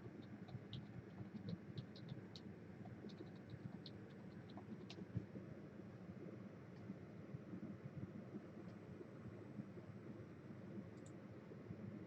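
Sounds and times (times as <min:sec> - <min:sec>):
light clicks and ticks: 0:00.1 - 0:05.3, 0:08.6 - 0:08.8, 0:10.9 - 0:11.2.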